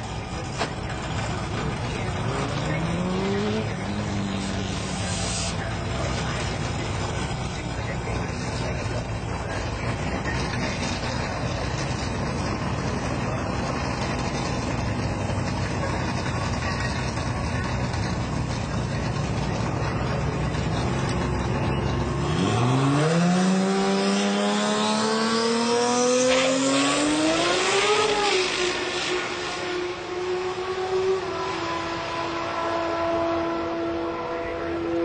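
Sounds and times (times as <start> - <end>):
drag car engine accelerating: 0.0 - 35.0.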